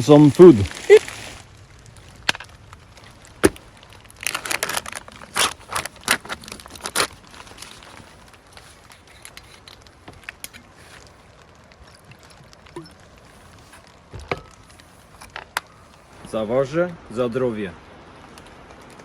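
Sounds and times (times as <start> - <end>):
packaging crinkling and tearing: 0.0 - 16.3, 18.1 - 19.0
packaging clicks: 2.3 - 16.0.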